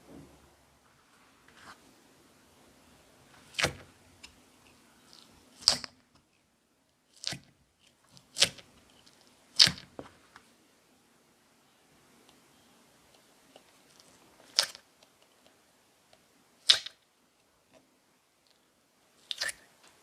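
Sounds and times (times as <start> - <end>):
slime popping: 16.6 - 17.0.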